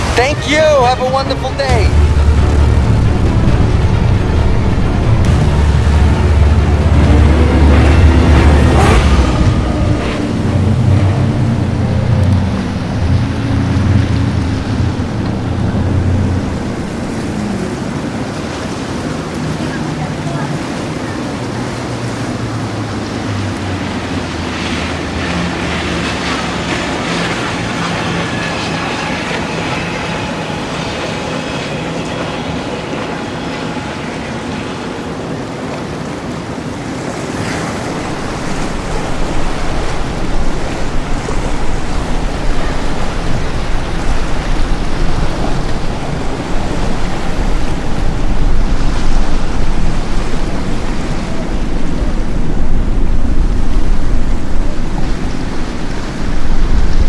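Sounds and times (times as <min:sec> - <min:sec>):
deep low rumble: 0:00.0 - 0:17.8, 0:37.9 - 0:57.0
boat engines running: 0:00.0 - 0:57.0
waves: 0:00.0 - 0:57.0
wind: 0:00.0 - 0:57.0.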